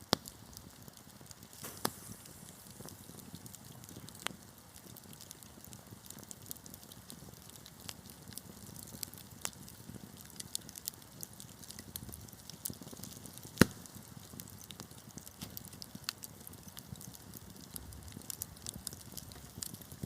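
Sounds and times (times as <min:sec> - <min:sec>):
low steady fire rumble: 0:00.0 - 0:20.0
wood fire crackling: 0:00.0 - 0:20.0
loud pop from fire: 0:01.5 - 0:04.4, 0:12.7 - 0:15.8.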